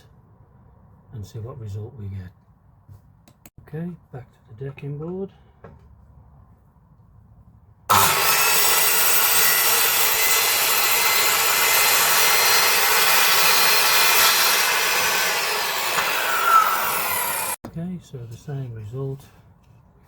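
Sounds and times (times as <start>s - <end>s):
circular saw cutting wood: 7.9s - 17.6s.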